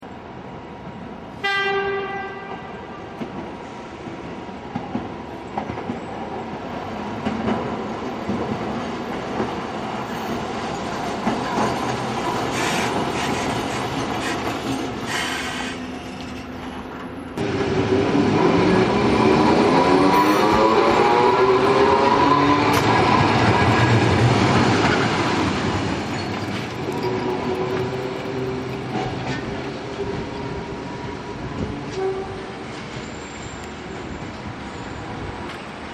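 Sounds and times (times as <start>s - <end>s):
tram running noise: 2.0s - 35.9s
wheels clicking on rail joints: 24.6s - 30.1s.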